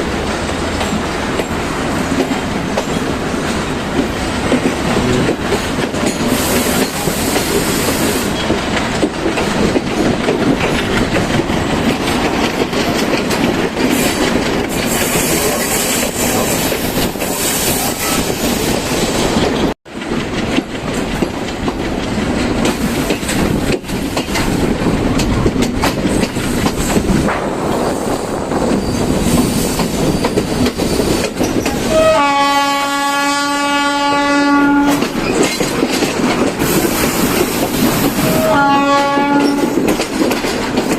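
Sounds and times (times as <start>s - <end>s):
train wheels rumbling: 0.0s - 40.9s
train horn: 4.8s - 5.8s, 31.9s - 35.1s, 38.2s - 39.8s.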